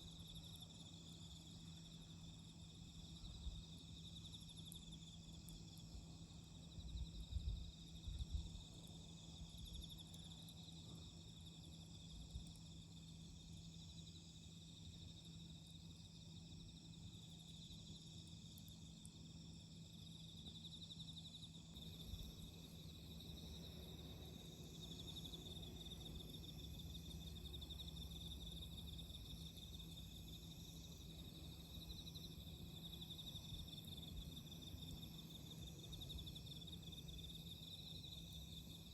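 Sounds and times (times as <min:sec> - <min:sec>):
crickets chirring: 0:00.0 - 0:38.9
low steady hum: 0:20.6 - 0:36.4.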